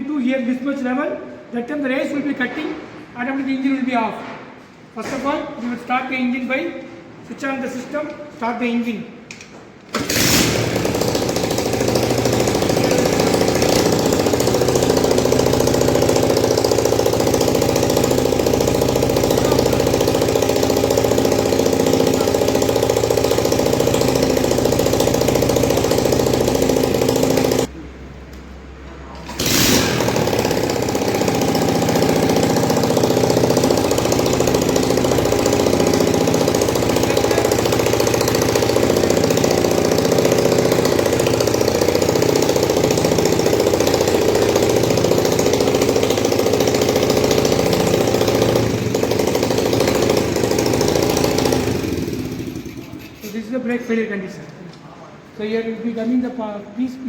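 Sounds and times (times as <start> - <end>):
petrol engine idling: 9.9 - 27.7, 29.2 - 53.3.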